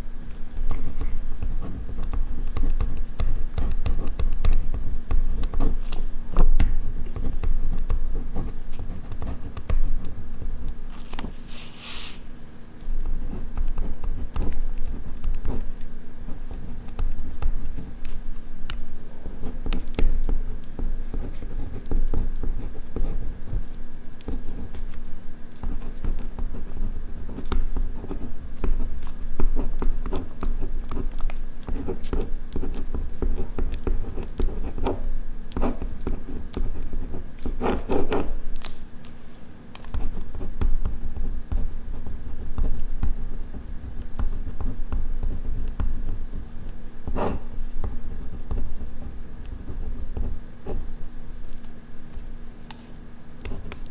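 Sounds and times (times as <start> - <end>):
pen clicks and taps: 0.3 - 8.0
pen scratching on paper: 1.0 - 6.0, 6.8 - 9.8, 11.0 - 12.3, 19.4 - 23.4, 25.6 - 38.3.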